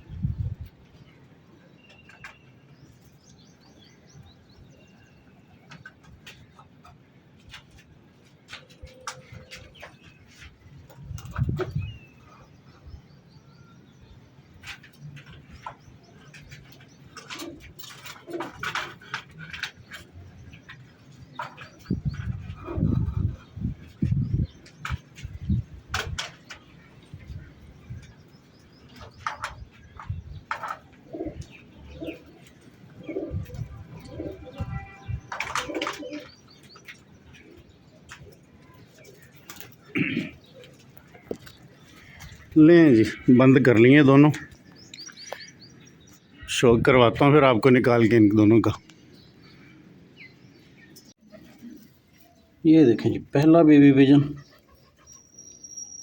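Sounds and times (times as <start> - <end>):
birds chirping: 0.0 - 56.0
pigeons cooing: 14.6 - 43.2, 50.3 - 52.6.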